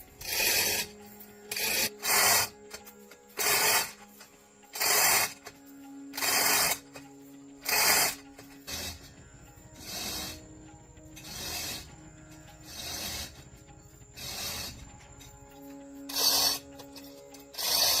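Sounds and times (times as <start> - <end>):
hand tool scraping a surface: 0.0 - 4.0, 4.8 - 5.5, 6.2 - 6.8, 7.6 - 9.1, 9.8 - 10.5, 11.2 - 11.9, 12.5 - 13.6, 14.2 - 14.9, 15.6 - 18.0.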